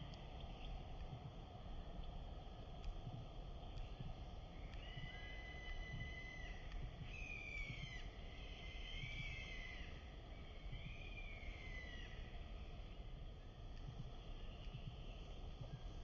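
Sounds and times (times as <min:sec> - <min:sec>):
low outdoor rumble: 0:00.0 - 0:16.0
bird whistled calls: 0:04.8 - 0:09.9.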